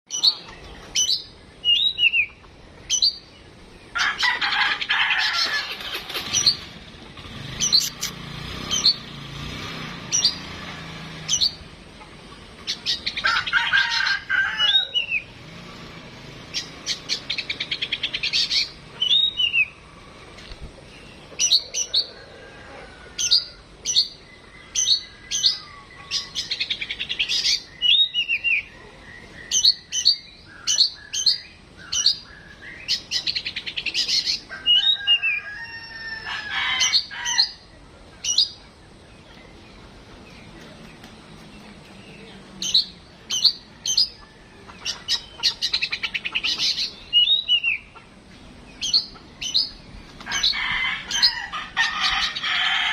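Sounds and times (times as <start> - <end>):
bird singing whistled notes: 0.1 - 3.3, 16.6 - 19.8, 23.3 - 34.0, 46.7 - 47.9.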